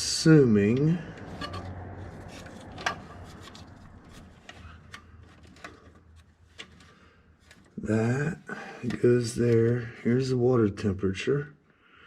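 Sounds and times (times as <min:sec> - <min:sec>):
wires and connectors clicking: 0:00.7 - 0:07.8.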